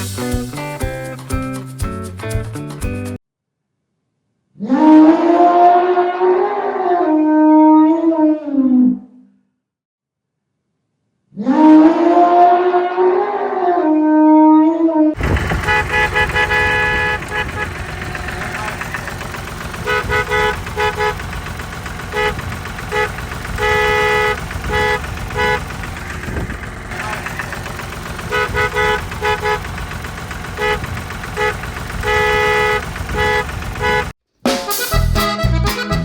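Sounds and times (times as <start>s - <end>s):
car horn honking: 15.2s - 34.1s
traffic rumble: 15.2s - 34.1s.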